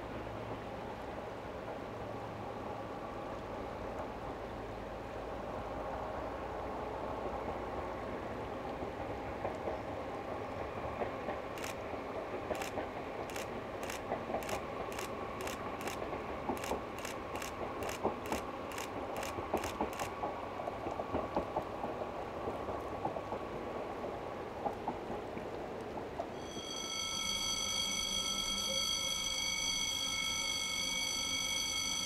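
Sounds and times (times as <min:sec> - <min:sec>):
train whine: 0:00.0 - 0:32.0
train wheels clicking: 0:07.3 - 0:32.0.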